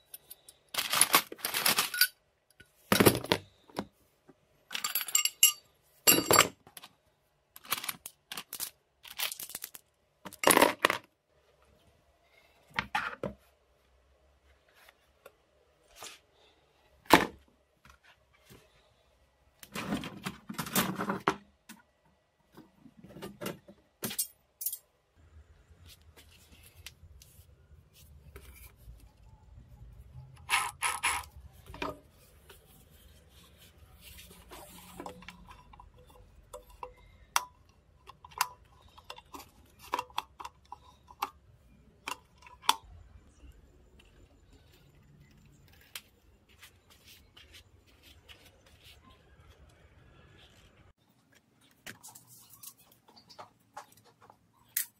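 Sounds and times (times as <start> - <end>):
metal parts and tools clinking: 0.0 - 3.6, 4.7 - 6.9, 24.0 - 24.9, 34.2 - 45.5.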